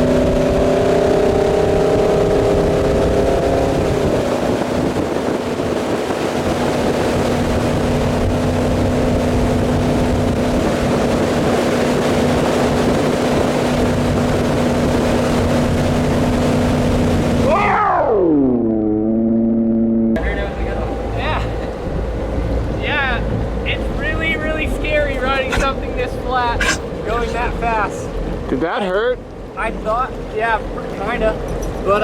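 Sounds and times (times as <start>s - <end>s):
boat engine running: 0.0s - 17.5s, 20.2s - 31.9s
water rushing: 20.2s - 28.5s.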